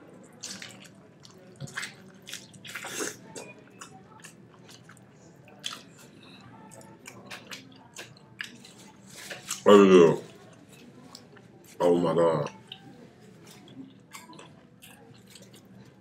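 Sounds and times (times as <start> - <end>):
person chewing steak: 0.3 - 9.6, 13.5 - 15.8.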